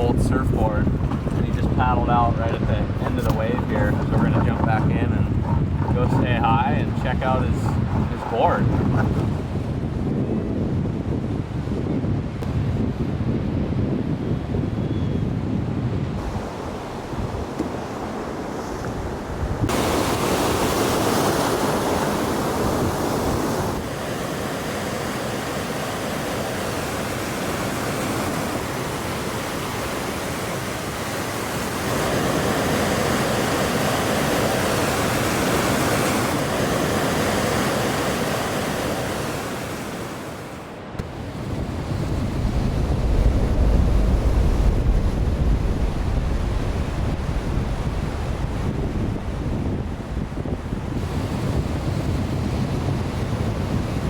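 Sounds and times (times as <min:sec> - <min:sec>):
ocean waves breaking: 0:00.0 - 0:10.2, 0:16.2 - 0:54.0
wind buffeting microphone: 0:00.0 - 0:24.8, 0:40.8 - 0:54.0.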